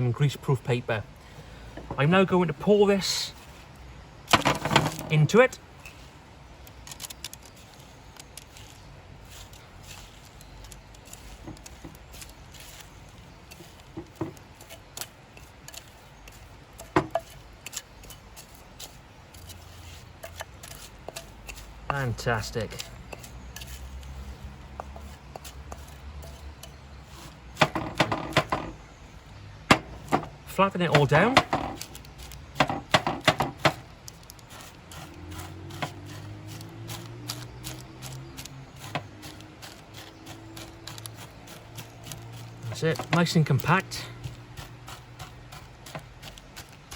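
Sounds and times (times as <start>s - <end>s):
spoon knocking and scraping bowl: 13.5s - 18.6s, 20.2s - 23.9s, 24.7s - 28.8s.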